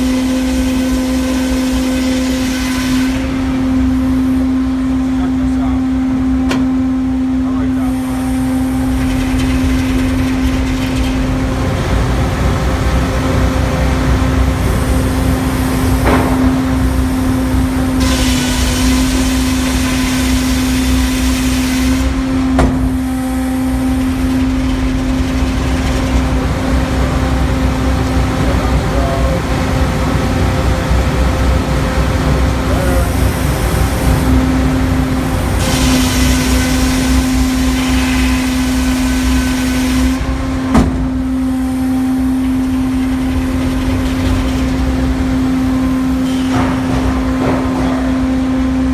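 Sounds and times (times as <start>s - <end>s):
sawmill engine drone: 0.0s - 48.9s
sharp knocks: 15.8s - 19.4s.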